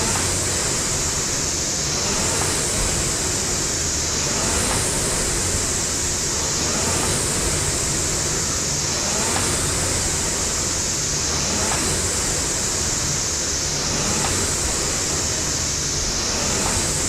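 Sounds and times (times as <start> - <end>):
rowing machine flywheel whirring: 0.0 - 17.0.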